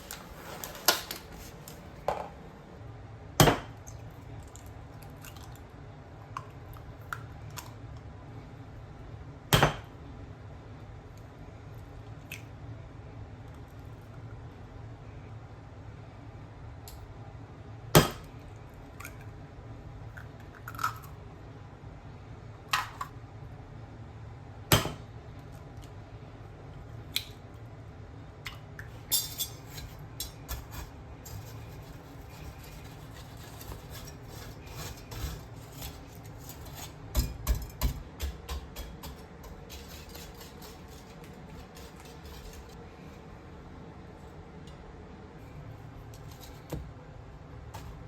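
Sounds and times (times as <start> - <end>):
kitchen bowls and utensils clinking: 29.0 - 42.8.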